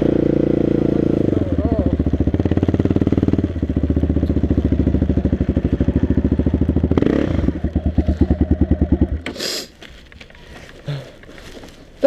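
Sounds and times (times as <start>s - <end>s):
quad bike engine running: 0.0s - 9.4s.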